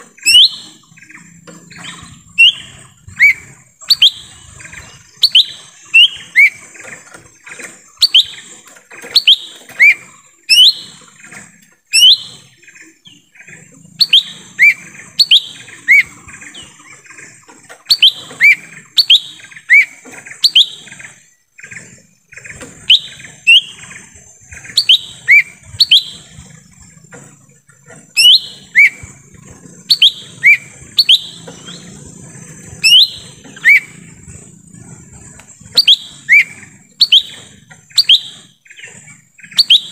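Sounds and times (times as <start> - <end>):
bird whistling sharp notes: 0.1 - 0.9, 1.7 - 6.6, 8.0 - 8.5, 9.1 - 11.0, 11.9 - 12.5, 14.0 - 16.2, 17.9 - 20.9, 22.8 - 23.8, 24.7 - 26.4, 28.2 - 29.2, 29.8 - 32.0, 32.6 - 34.2, 35.6 - 39.9.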